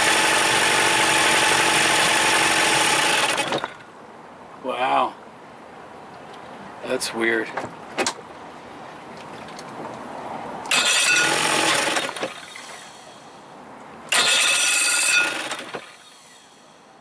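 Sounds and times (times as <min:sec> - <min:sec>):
outboard motor running rough: 0:00.0 - 0:03.9, 0:10.7 - 0:13.4, 0:14.1 - 0:16.7.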